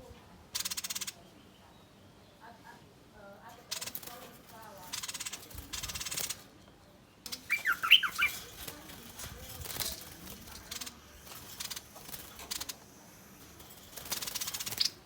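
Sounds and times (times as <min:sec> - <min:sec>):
bird rasping scolds: 0:03.7 - 0:06.5, 0:07.3 - 0:15.0.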